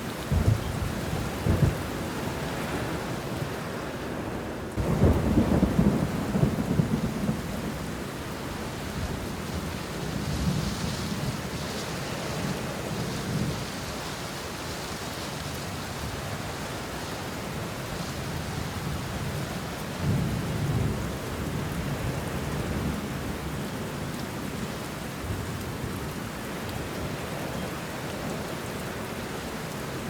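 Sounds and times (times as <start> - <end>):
rain falling on leaves: 0.0 - 30.0
low thunder rumbling: 0.2 - 3.0, 4.8 - 13.8.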